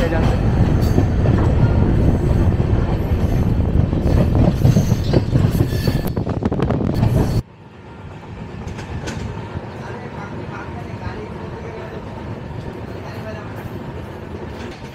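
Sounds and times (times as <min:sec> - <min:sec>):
train wheels rumbling: 0:00.0 - 0:14.9
wheels squealing: 0:02.1 - 0:06.3.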